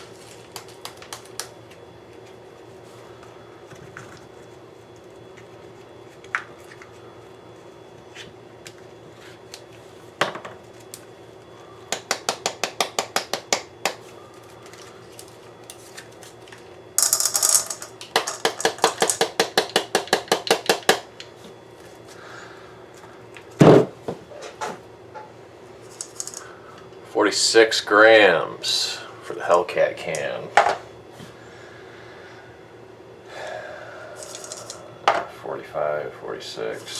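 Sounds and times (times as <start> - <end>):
small hard objects clicking and rattling: 17.0 - 20.8, 25.9 - 26.5, 34.2 - 34.8.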